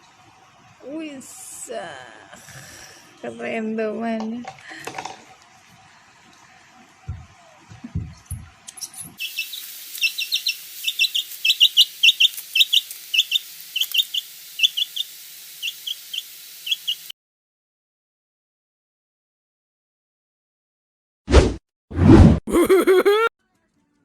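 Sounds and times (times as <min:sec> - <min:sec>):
birds peeping: 0:09.2 - 0:17.1.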